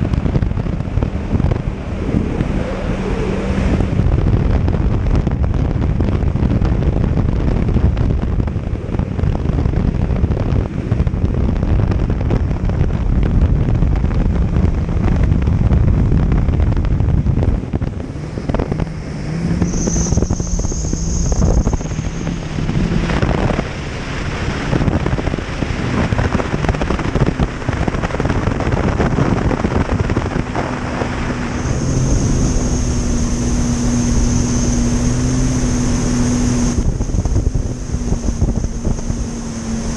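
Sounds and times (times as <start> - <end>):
jet ski engine running: 0.0 - 39.9
wind buffeting microphone: 0.0 - 39.9
thin high whine: 18.9 - 23.2, 31.1 - 39.9.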